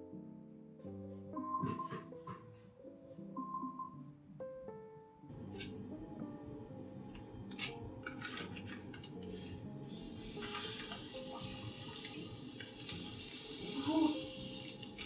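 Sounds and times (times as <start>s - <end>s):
soft background music: 0.0s - 15.0s
dishes and utensils clinking: 7.1s - 15.0s
water running from a tap: 7.4s - 15.0s.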